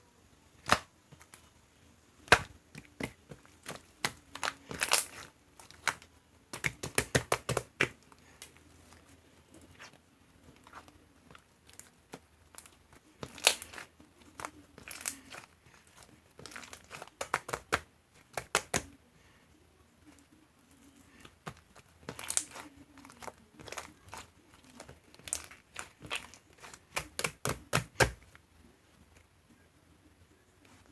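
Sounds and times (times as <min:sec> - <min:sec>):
crinkling and crackling: 0:02.2 - 0:19.3, 0:20.0 - 0:28.4.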